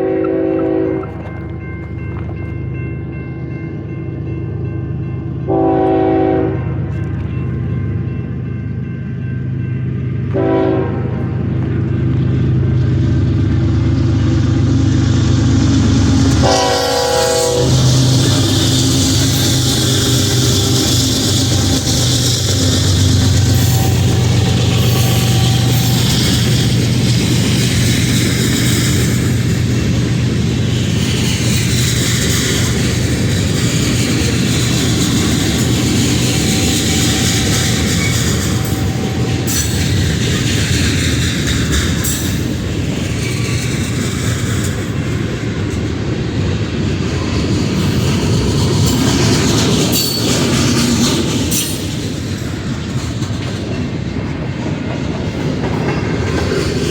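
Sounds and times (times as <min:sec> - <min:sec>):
train air horn blasts: 0:00.0 - 0:01.1, 0:05.5 - 0:06.8, 0:10.3 - 0:11.3, 0:16.2 - 0:26.5, 0:36.4 - 0:39.8
diesel locomotive engine drone: 0:00.0 - 0:56.9
train wheel and rail noise: 0:00.0 - 0:56.9.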